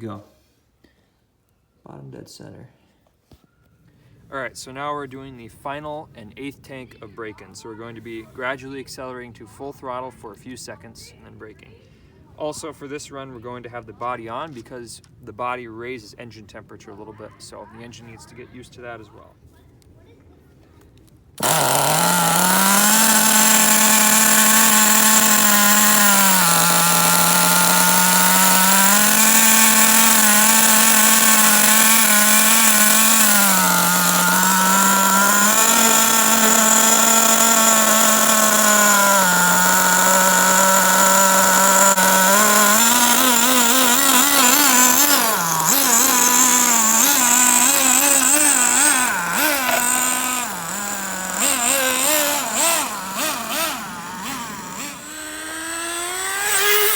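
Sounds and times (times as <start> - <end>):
rc car nitro engine running: 21.4 - 56.9.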